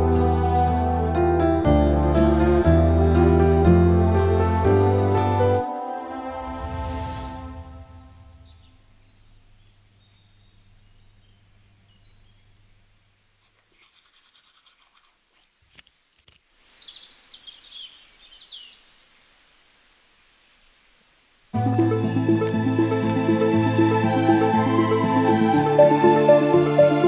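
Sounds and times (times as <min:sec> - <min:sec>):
soft background music: 0:00.0 - 0:08.9, 0:21.6 - 0:27.0
birds chirping: 0:07.5 - 0:22.1.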